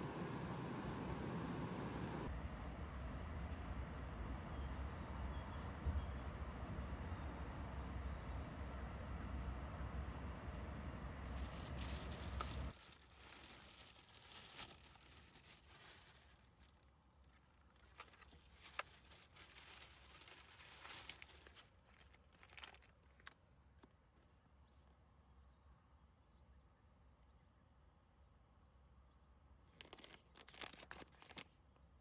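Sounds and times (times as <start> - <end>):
faint rustling and crinkling: 11.2 - 24.9, 29.7 - 31.6.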